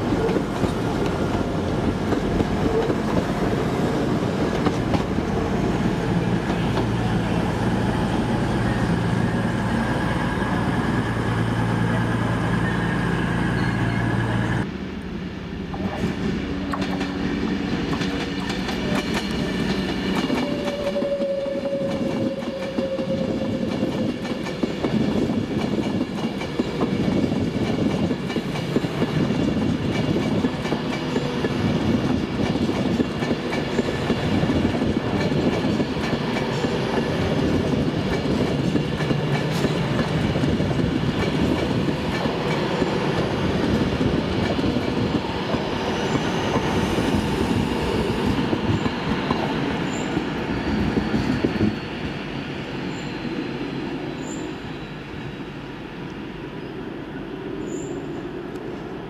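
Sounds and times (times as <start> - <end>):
train wheels clattering on rails: 0.0 - 8.3, 15.7 - 52.2.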